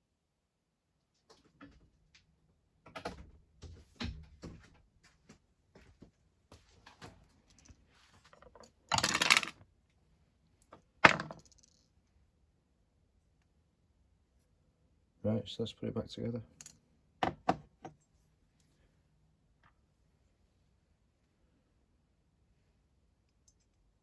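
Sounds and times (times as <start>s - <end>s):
small metal parts clicking: 8.4s - 9.6s.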